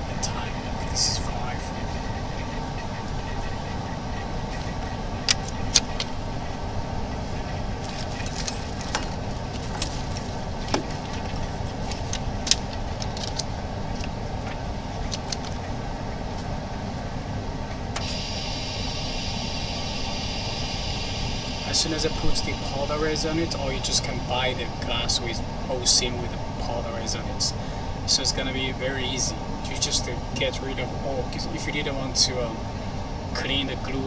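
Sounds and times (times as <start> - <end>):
laminating machine hum: 0.0 - 34.0
high hiss: 18.0 - 27.6.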